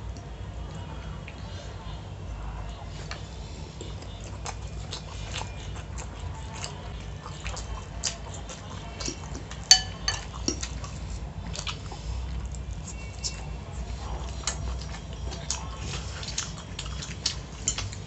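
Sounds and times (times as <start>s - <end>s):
close-up chewing with mouth clicks: 2.7s - 18.0s
fork scraping and clinking on plate: 9.7s - 10.4s.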